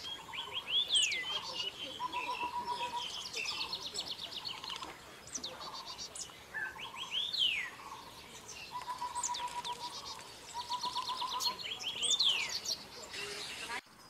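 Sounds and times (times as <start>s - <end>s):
birds calling: 0.0s - 13.8s.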